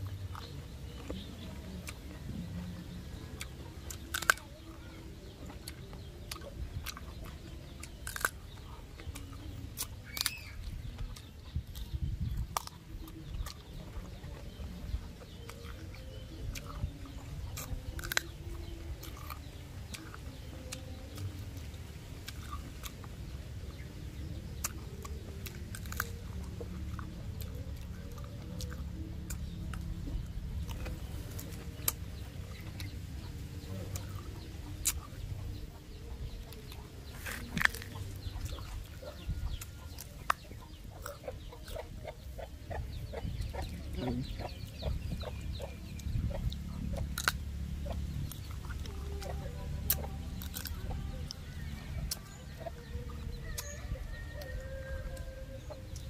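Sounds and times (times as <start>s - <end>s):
crisp fruit bites and chewing: 0.0s - 56.0s
low wavering animal calls: 24.2s - 56.0s.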